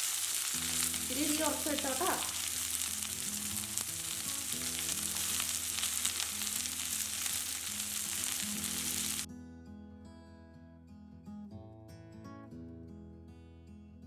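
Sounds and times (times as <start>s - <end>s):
onions sizzling in hot oil: 0.0s - 9.3s.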